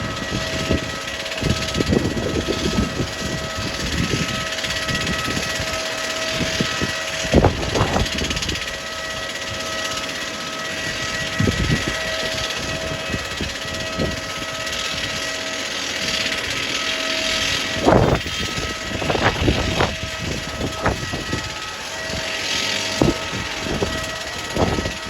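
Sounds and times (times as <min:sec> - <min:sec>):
jet engine whine and hiss: 0:00.0 - 0:25.0.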